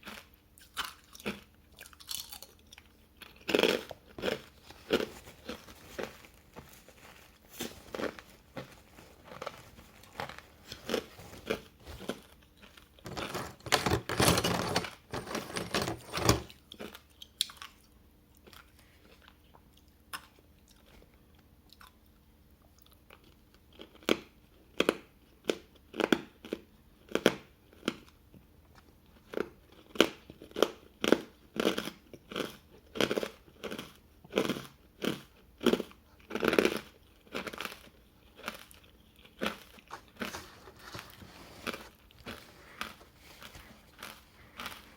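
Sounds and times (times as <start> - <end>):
ice crunching while chewed: 0.0 - 13.3, 29.0 - 44.9.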